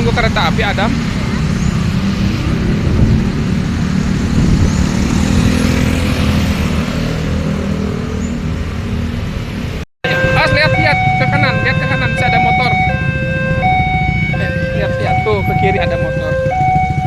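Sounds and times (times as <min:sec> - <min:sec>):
tyre and road noise: 0:00.0 - 0:17.0
vehicle engines passing: 0:00.0 - 0:17.0.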